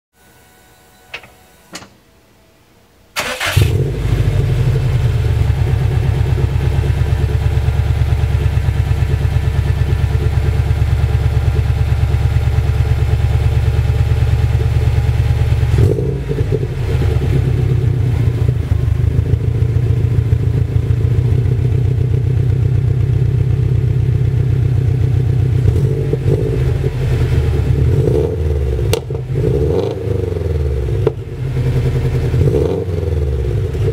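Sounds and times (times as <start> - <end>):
car engine starting and idling: 3.2 - 33.9.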